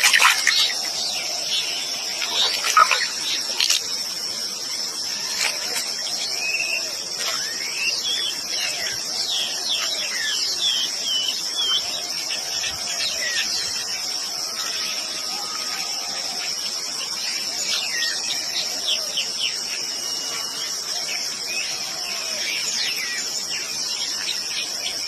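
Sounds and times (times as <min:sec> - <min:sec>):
birds chirping: 0:00.0 - 0:04.0
high-pitched insect chorus: 0:00.0 - 0:25.0.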